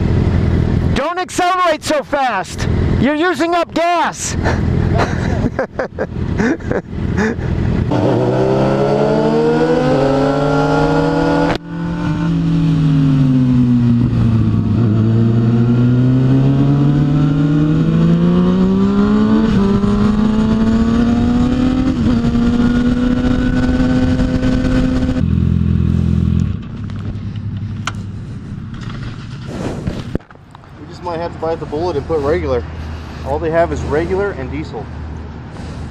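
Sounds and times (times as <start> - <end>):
motorcycle engine revving: 6.1 - 30.2.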